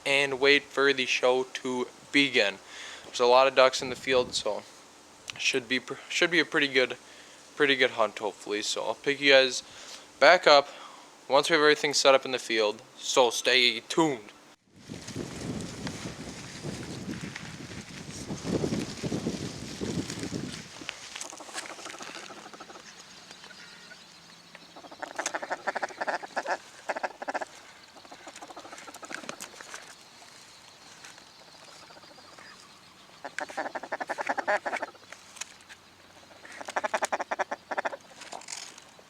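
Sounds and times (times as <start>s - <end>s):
duck quacking: 24.9s - 29.4s, 33.2s - 35.0s.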